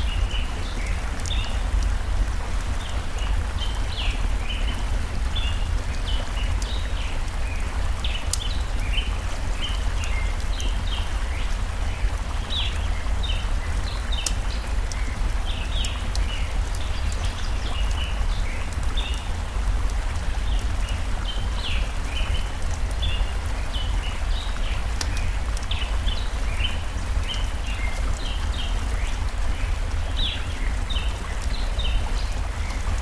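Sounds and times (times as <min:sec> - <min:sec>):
stream flowing: 0:00.0 - 0:33.0.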